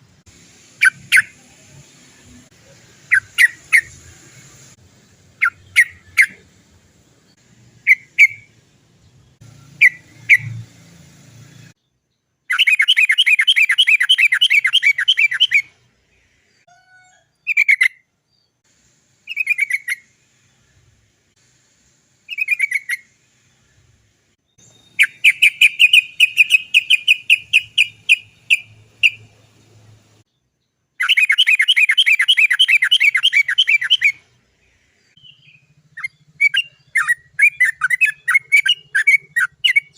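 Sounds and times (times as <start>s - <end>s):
bird rapid chattering rolls: 24.7s - 29.6s, 35.4s - 39.9s.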